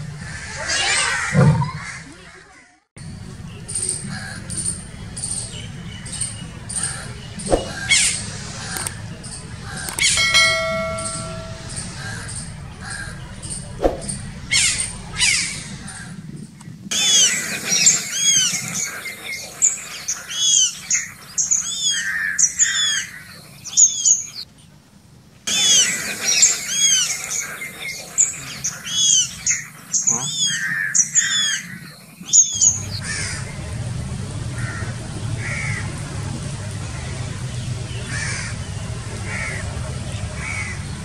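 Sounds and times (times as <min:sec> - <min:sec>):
birds chirping chorus: 0:03.1 - 0:41.0.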